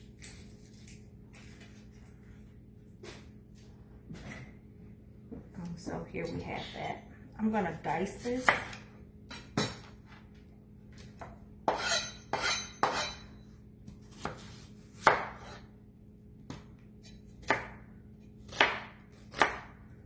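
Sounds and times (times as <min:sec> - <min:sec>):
knife chopping onion: 0:08.3 - 0:09.8, 0:11.1 - 0:13.3, 0:13.9 - 0:15.7, 0:16.4 - 0:20.0.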